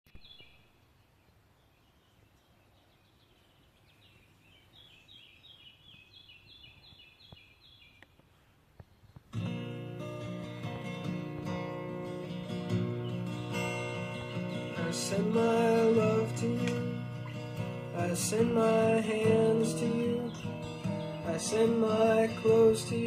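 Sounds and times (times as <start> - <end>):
songbird chirping: 0.1 - 23.0
acoustic guitar strumming: 9.3 - 23.0.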